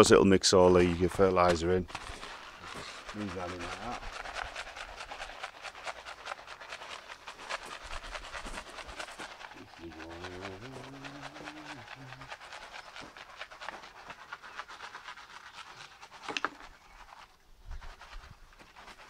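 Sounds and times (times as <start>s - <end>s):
seed granules pattering on soil: 0.8s - 19.0s
low voice hum: 9.6s - 12.4s.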